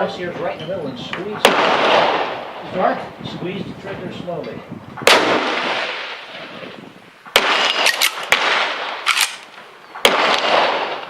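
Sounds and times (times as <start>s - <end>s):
rifle shots with echo: 1.4s - 2.6s, 5.0s - 6.5s, 7.3s - 11.0s
sharp clacks: 7.7s - 8.4s.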